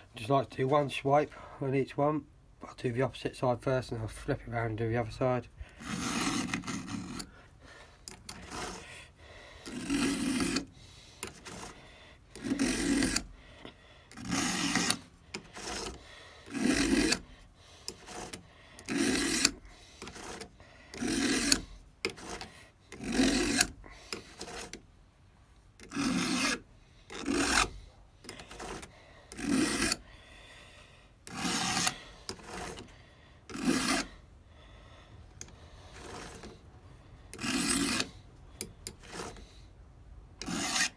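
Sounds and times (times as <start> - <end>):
file scraping chain: 5.7 - 24.9, 25.8 - 30.1, 31.2 - 34.2, 35.3 - 39.7, 40.4 - 40.9.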